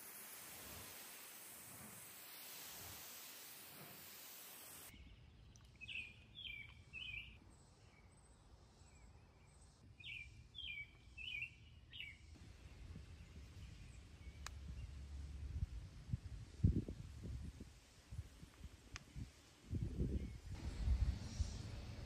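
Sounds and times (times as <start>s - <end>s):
faint low outdoor rumble: 0.0s - 22.0s
small bird chirping: 3.7s - 15.0s.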